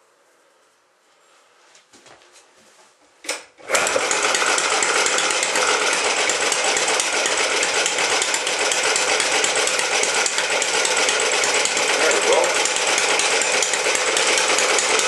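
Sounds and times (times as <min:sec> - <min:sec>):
small engine running fast: 0:03.6 - 0:15.0.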